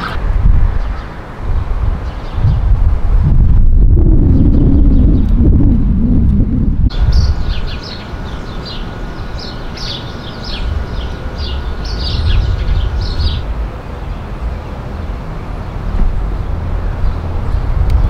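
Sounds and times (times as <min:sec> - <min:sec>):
songbirds chirping: 0:00.0 - 0:02.7, 0:06.9 - 0:18.0
steady low rumble: 0:00.0 - 0:18.0.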